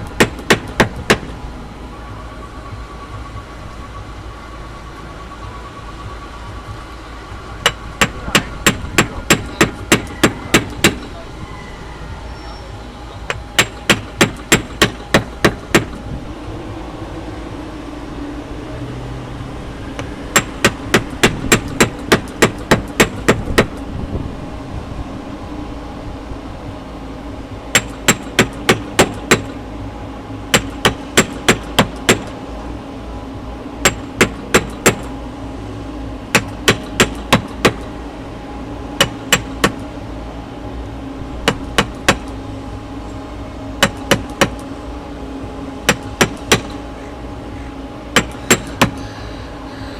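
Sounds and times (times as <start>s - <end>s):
mallet striking caulking iron: 0.1s - 1.3s, 7.6s - 11.2s, 13.3s - 16.0s, 20.3s - 23.8s, 27.8s - 29.6s, 30.5s - 32.3s, 33.8s - 35.1s, 36.4s - 37.8s, 39.0s - 39.8s, 41.5s - 42.3s, 43.8s - 44.6s, 45.9s - 46.8s, 48.2s - 49.0s.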